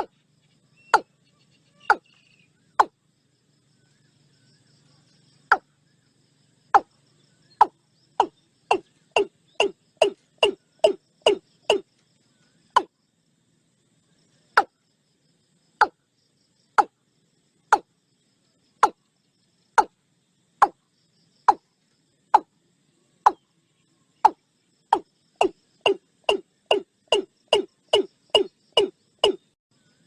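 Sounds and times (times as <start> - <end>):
bird calling sharp notes: 0.7 - 2.9, 7.6 - 11.9, 24.2 - 29.6.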